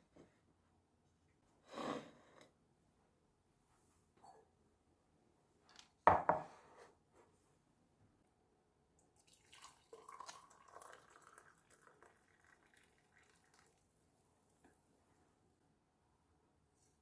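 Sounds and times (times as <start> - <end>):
water dripping and trickling: 9.2 - 13.8.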